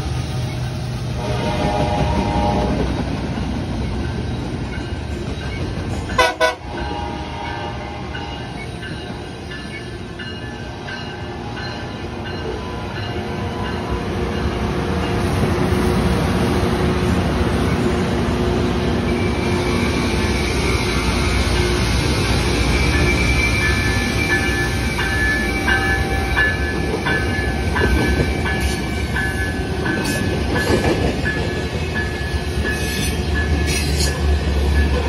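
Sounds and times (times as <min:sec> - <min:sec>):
rail cars rolling past: 0:00.0 - 0:35.0
rail machinery running: 0:00.0 - 0:35.0
train horn blasts: 0:01.2 - 0:02.9, 0:06.2 - 0:08.4.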